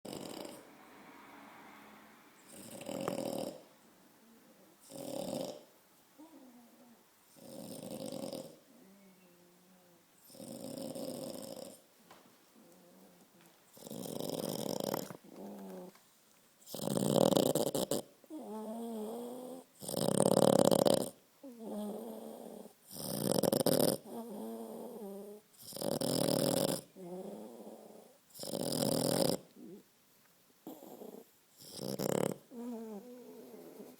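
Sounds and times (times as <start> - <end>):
dog snoring: 0.0 - 0.8, 2.4 - 3.7, 4.8 - 6.6, 7.3 - 8.9, 10.2 - 11.9, 12.6 - 15.9, 16.6 - 29.8, 30.6 - 33.9.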